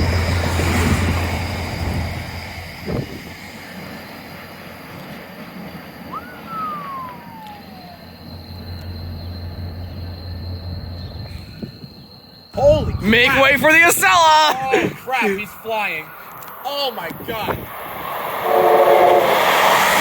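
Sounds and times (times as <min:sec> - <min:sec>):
train rumbling past: 0:00.0 - 0:20.0
whistle-like sliding tone: 0:06.0 - 0:11.8, 0:18.4 - 0:20.0.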